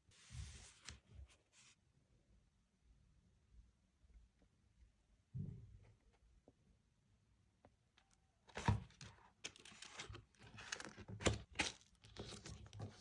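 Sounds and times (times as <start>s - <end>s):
paper crinkling and rustling: 0.2s - 1.7s, 8.5s - 13.0s.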